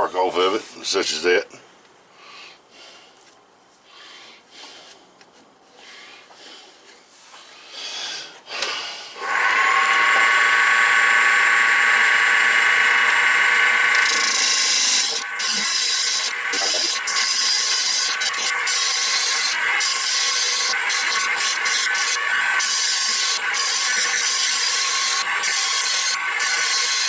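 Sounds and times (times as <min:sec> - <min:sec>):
gouge cutting wood on a lathe: 0:09.2 - 0:27.0.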